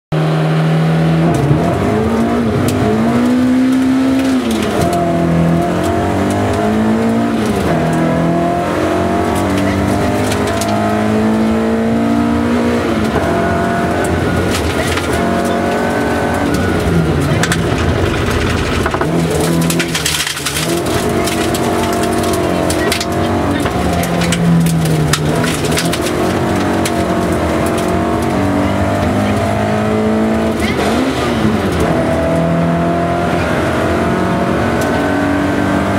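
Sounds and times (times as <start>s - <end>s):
rally car engine revving: 0.1s - 35.9s
stones rattling against car body: 14.0s - 28.4s.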